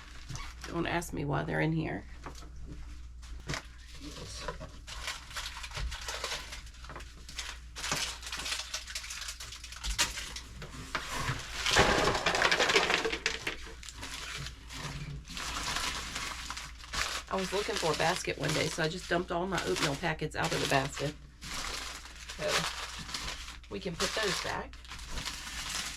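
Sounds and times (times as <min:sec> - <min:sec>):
packaging rustling and crinkling: 0:00.0 - 0:00.8, 0:02.2 - 0:25.9
boxes and containers clattering: 0:10.9 - 0:17.2.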